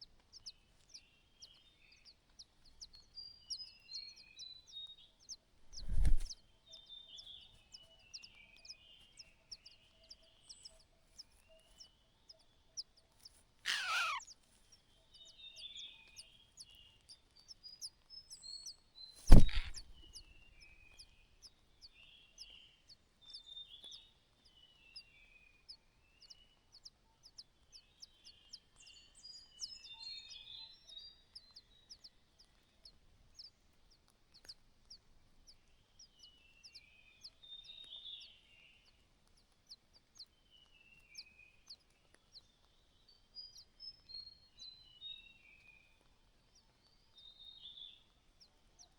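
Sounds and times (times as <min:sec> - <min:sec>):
small birds chirping: 0:00.0 - 0:48.9
bird call sweeping down: 0:13.7 - 0:14.2, 0:19.3 - 0:19.8
sharp knock: 0:19.3 - 0:19.8.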